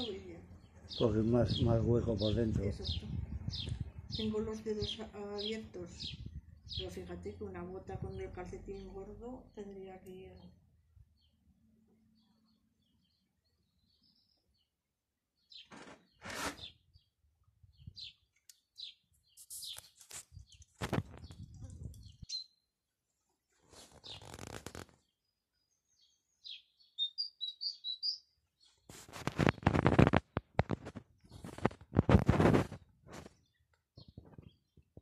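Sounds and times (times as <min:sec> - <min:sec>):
small birds chirping: 0:00.0 - 0:22.8, 0:23.7 - 0:35.0
rustling noise: 0:15.6 - 0:16.7, 0:19.3 - 0:22.2, 0:23.5 - 0:25.1, 0:28.6 - 0:35.0.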